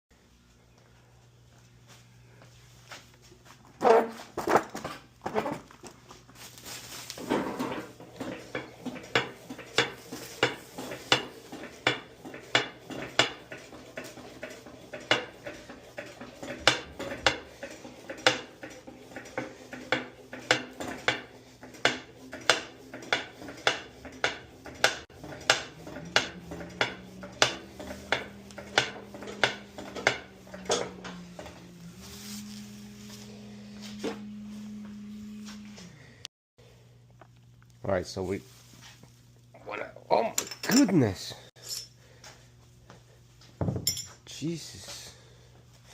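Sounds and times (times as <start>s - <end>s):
hand tools clicking on metal: 8.2s - 31.5s.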